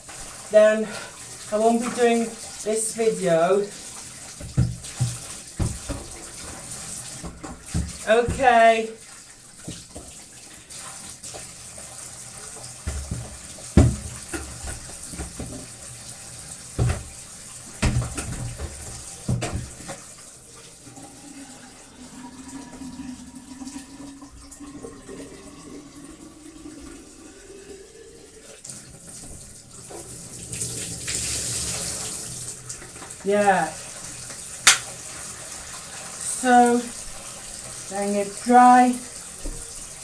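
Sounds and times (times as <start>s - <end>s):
tap water running into sink: 0.0s - 40.0s
parts knocking against sink: 4.4s - 6.2s, 12.8s - 15.7s, 16.8s - 17.2s, 17.8s - 20.0s, 34.6s - 34.9s.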